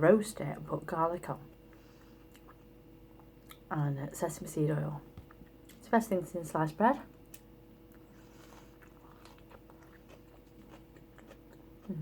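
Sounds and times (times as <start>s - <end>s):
faint steady hum: 0.0s - 12.0s
person chewing food: 1.6s - 3.7s, 7.3s - 12.0s.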